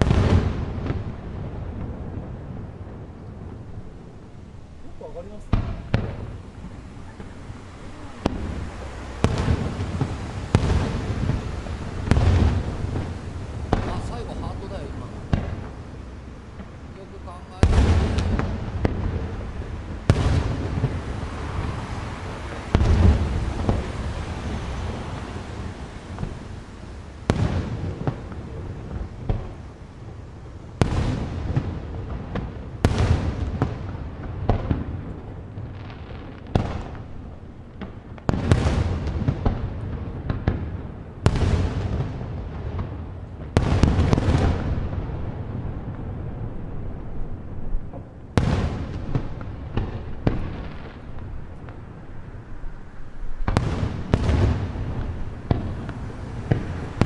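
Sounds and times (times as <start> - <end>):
firework shells bursting: 4.8 - 29.8.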